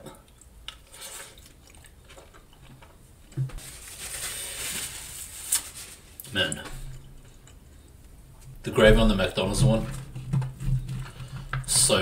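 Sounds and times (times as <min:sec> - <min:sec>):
person chewing food: 0:00.1 - 0:03.4
paper napkin rustling: 0:03.6 - 0:06.2.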